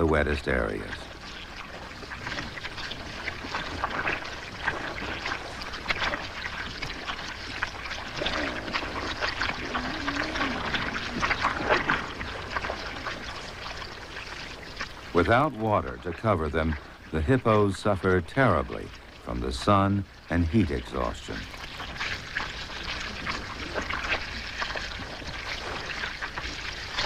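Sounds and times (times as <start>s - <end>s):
hippos splashing in mud: 0.0s - 27.0s
faint low animal call: 8.1s - 12.0s.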